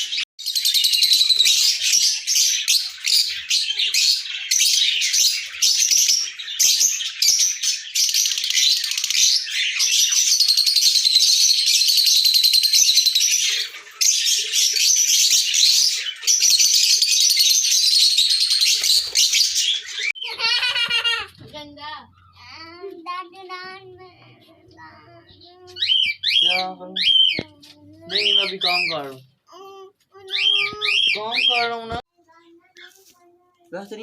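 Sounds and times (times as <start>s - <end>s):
lovebirds chirping and shrieking: 0.0s - 34.0s
buzzy bird trilling: 11.0s - 21.3s.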